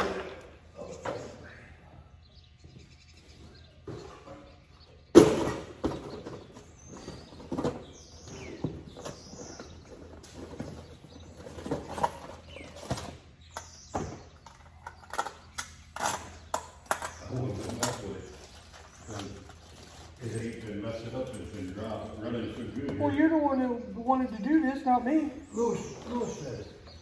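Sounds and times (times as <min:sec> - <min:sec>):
birds chirping: 0:00.0 - 0:27.0
tools and metal parts clattering: 0:05.2 - 0:23.0.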